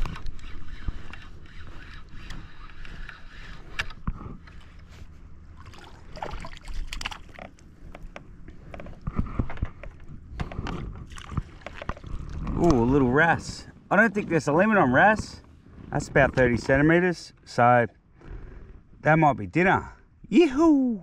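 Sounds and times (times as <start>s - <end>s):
water sloshing against kayak hull: 4.2s - 12.9s
knocks and splashes: 5.6s - 7.5s.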